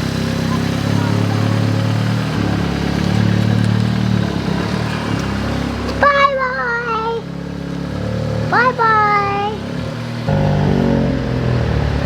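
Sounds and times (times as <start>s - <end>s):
car engine running: 0.0s - 12.0s
high-pitched voice calling out: 6.0s - 7.3s, 8.5s - 9.6s.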